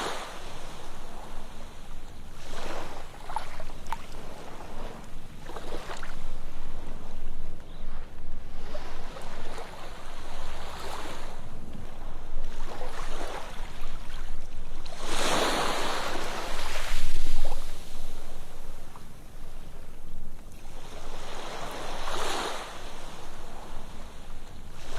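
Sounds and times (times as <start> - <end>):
sea waves breaking on beach: 0.0 - 24.9.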